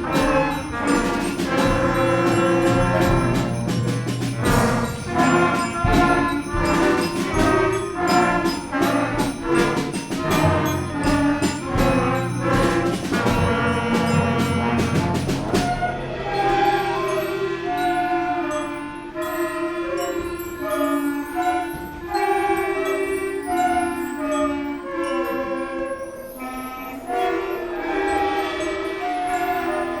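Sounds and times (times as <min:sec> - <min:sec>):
concert band playing: 0:00.0 - 0:19.4.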